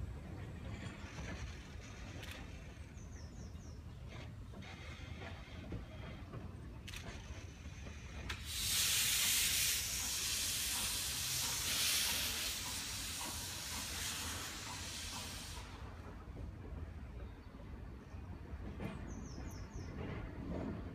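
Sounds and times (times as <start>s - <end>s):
locomotive steam hissing: 0.0s - 16.6s.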